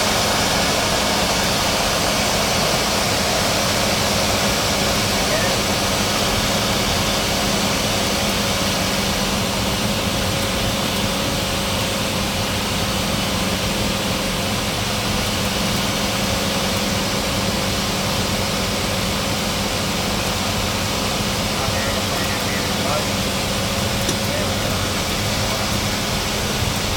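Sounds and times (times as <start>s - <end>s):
seaplane engine and propeller drone: 0.0s - 26.9s.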